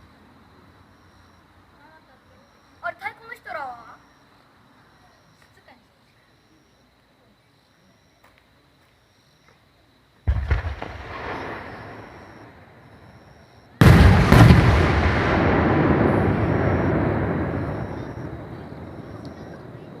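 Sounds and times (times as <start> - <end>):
fireworks bangs: 10.2 - 20.0
rumbling echo: 13.8 - 20.0.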